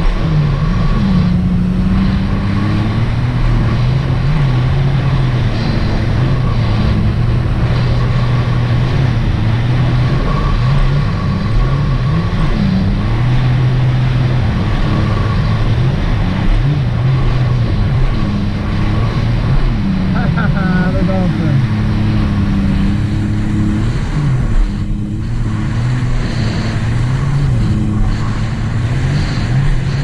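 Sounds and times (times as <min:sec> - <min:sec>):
watercraft engine running: 0:00.0 - 0:30.0.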